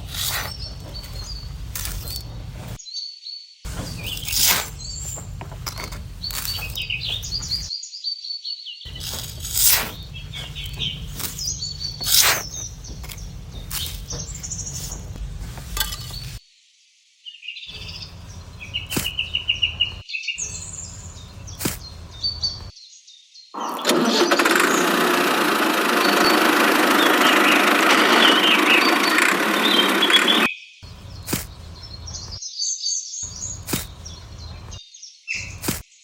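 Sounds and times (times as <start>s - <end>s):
small birds chirping: 0.0s - 16.4s, 17.2s - 36.0s
sharp clicks: 12.0s - 14.0s, 23.6s - 30.5s.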